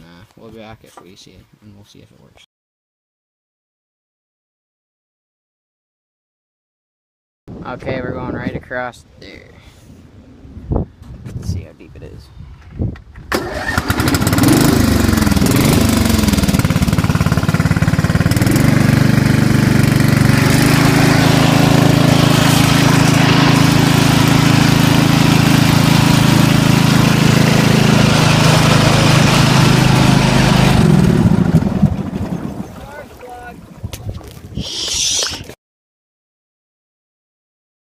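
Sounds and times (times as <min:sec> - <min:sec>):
lawn tractor engine running: 0:13.3 - 0:33.0.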